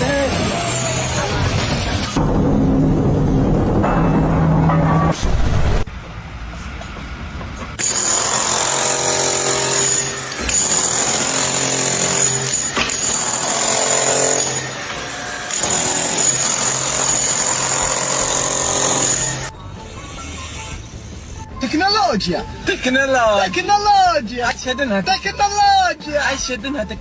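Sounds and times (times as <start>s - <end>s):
power tool whining: 0.0s - 2.2s, 7.8s - 19.5s.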